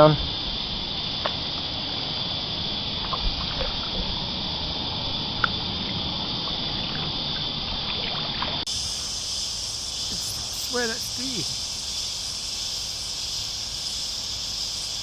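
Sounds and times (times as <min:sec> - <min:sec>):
cicada chorus droning: 0:00.0 - 0:15.0
water dripping and lapping: 0:03.0 - 0:04.1, 0:05.4 - 0:11.2.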